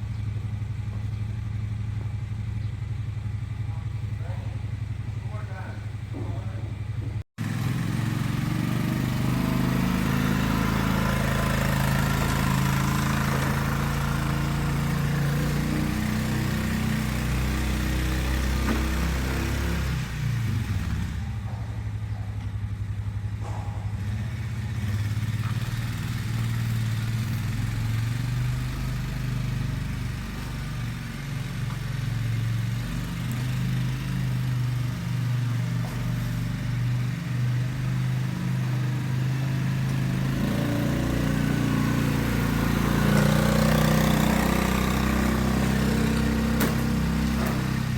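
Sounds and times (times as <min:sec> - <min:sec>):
engine humming: 0:00.0 - 0:47.9.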